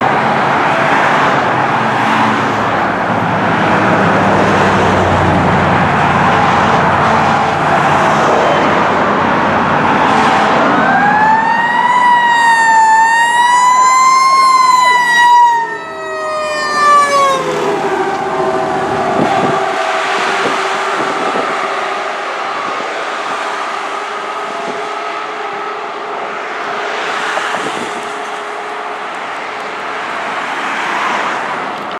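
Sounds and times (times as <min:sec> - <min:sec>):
fire engine and road noise: 0:00.0 - 0:31.9
siren wailing: 0:03.5 - 0:31.1.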